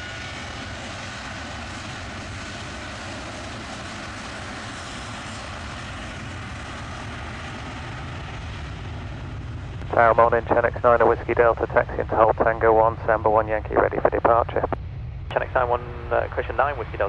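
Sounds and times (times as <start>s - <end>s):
airliner engines running: 0.0s - 17.0s.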